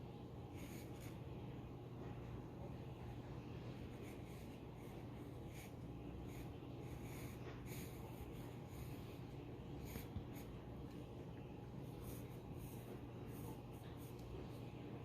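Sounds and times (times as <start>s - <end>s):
faint low hum: 0.0s - 15.0s
pencil scratching on paper: 0.4s - 1.4s, 3.8s - 10.7s, 11.8s - 14.6s.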